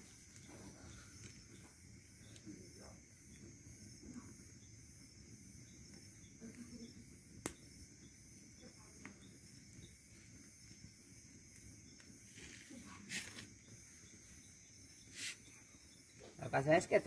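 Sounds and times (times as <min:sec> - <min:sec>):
crickets chirring: 0:00.0 - 0:17.0
short hiss: 0:12.2 - 0:13.6, 0:15.0 - 0:15.6.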